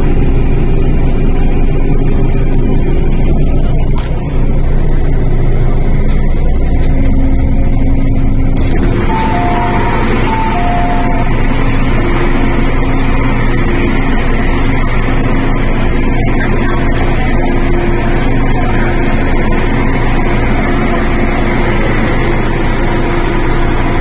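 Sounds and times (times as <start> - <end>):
train carriage rumble: 0.0 - 24.0
two-note chime: 9.1 - 11.3.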